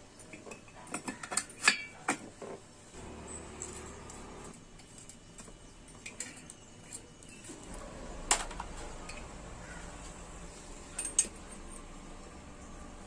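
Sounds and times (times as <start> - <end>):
metal tools clicking and clinking: 4.8 - 7.7, 10.7 - 12.0.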